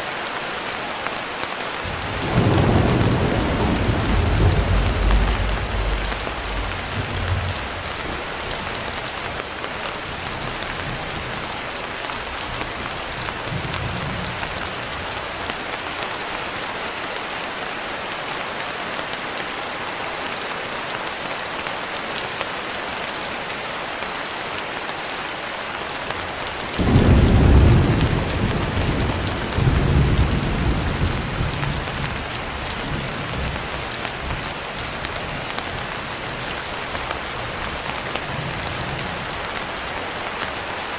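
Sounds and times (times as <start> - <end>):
steady rain falling: 0.0 - 40.9
thunder rumbling: 1.8 - 9.4, 26.3 - 40.0.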